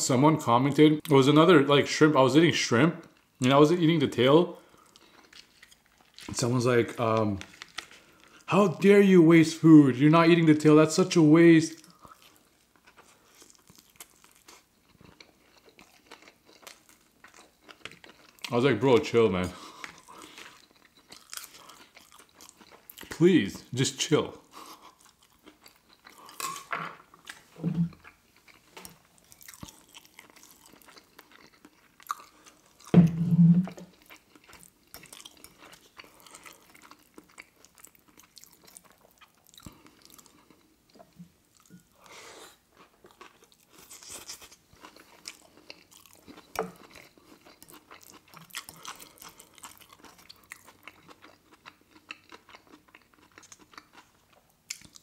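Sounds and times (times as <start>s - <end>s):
person chewing food: 4.6s - 6.4s, 7.2s - 8.5s, 11.8s - 18.5s, 19.4s - 23.2s, 24.4s - 33.0s, 33.6s - 55.0s.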